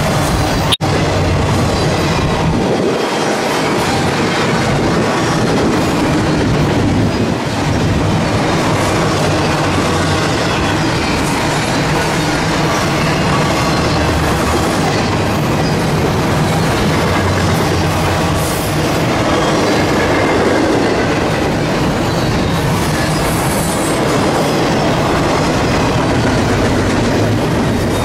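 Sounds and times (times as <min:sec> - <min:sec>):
steel wheels rumbling on rail: 0:00.0 - 0:28.0.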